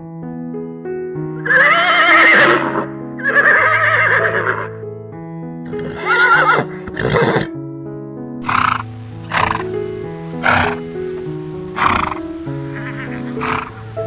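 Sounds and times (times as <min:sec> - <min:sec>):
soft piano music: 0:00.0 - 0:14.0
horse whinnying: 0:01.4 - 0:04.7, 0:05.7 - 0:07.5, 0:10.4 - 0:10.8.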